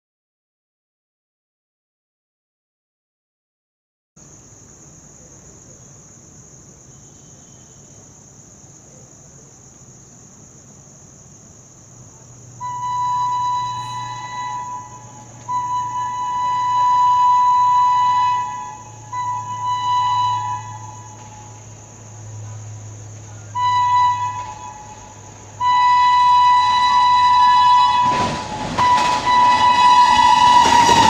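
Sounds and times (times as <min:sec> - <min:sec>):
insects droning: 0:04.2 - 0:31.0
train rumbling: 0:10.9 - 0:31.0
locomotive horn blasts: 0:12.6 - 0:22.7, 0:23.3 - 0:31.0.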